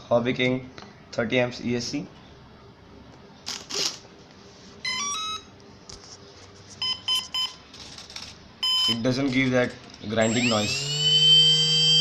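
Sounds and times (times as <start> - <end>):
short beeps: 8.6 - 9.0
motor power-up chime: 10.3 - 12.0.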